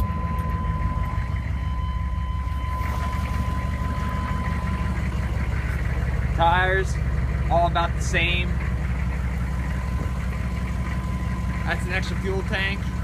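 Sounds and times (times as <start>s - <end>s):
high electronic tone: 0.0s - 6.0s
diesel engine idling: 0.0s - 13.0s.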